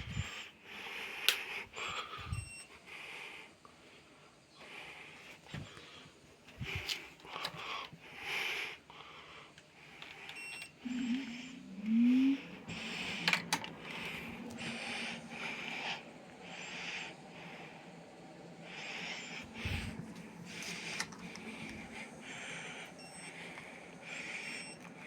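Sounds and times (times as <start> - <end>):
air conditioner beeping: 0.0 - 3.3, 3.9 - 25.0
air conditioner motor humming: 0.0 - 25.0.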